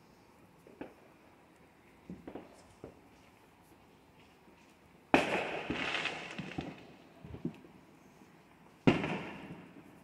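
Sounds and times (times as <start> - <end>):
fireworks crackling and popping: 2.0 - 3.3, 4.6 - 7.7, 8.6 - 10.0
fireworks banging: 5.1 - 7.5, 8.8 - 9.8.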